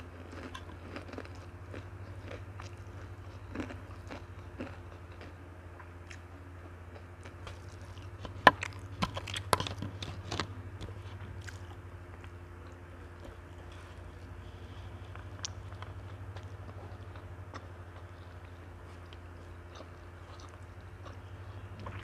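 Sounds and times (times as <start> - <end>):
chewing food: 0.0 - 22.0
low steady hum: 0.0 - 22.0
crunchy bites: 0.1 - 5.4, 6.9 - 12.4.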